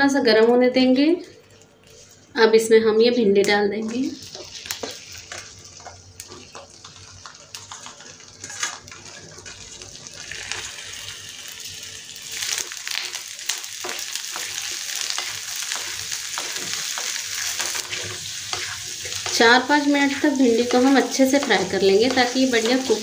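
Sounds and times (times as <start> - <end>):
spatula stirring and scraping: 1.7 - 2.3, 3.9 - 10.7, 13.8 - 23.0
okra sizzling in hot oil: 3.8 - 23.0.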